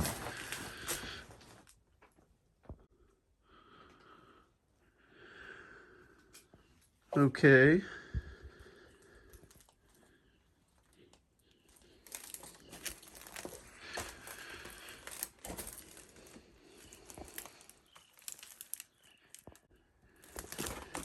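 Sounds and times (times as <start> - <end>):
footsteps crunching on debris: 0.0 - 1.7, 12.0 - 19.6, 20.2 - 21.0.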